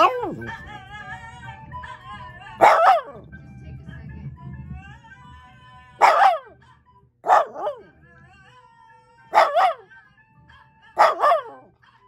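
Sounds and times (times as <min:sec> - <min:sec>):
dog barking: 0:00.0 - 0:00.4, 0:02.6 - 0:03.2, 0:06.0 - 0:06.6, 0:07.2 - 0:07.8, 0:09.3 - 0:09.9, 0:11.0 - 0:11.7
faint background music: 0:00.0 - 0:12.0.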